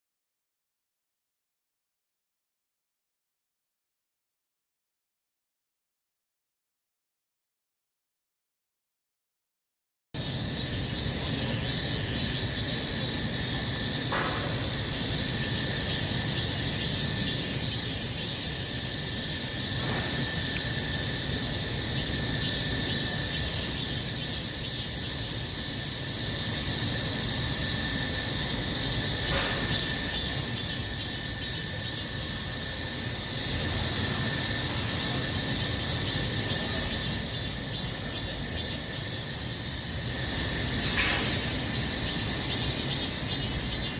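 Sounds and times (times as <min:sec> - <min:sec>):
cicadas buzzing: 0:10.2 - 0:43.9.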